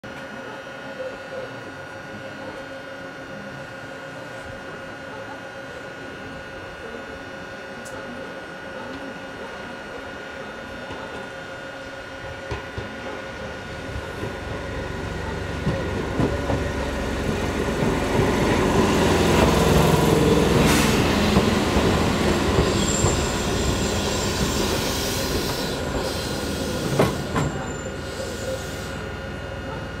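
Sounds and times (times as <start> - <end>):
train wheels clacking: 15.5 - 28.8
high wheel squeal: 22.6 - 29.0.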